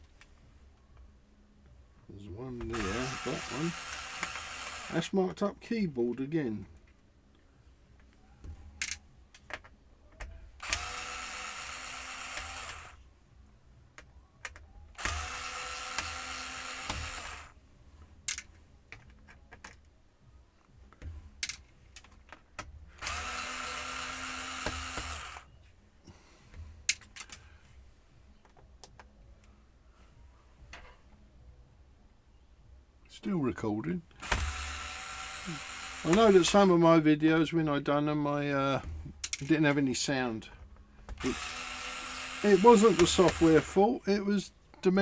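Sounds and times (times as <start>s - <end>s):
screws clicking and tapping: 2.6s - 5.0s, 8.0s - 13.0s, 14.0s - 17.5s, 20.9s - 25.5s, 34.1s - 36.6s, 41.1s - 43.8s
electric screwdriver whirring: 2.6s - 5.1s, 10.6s - 13.0s, 15.0s - 17.6s, 22.9s - 25.5s, 34.2s - 36.7s, 41.1s - 43.8s.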